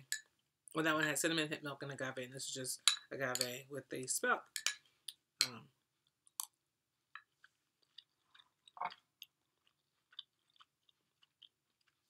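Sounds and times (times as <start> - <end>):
chewing with wet mouth clicks: 7.2 - 12.0.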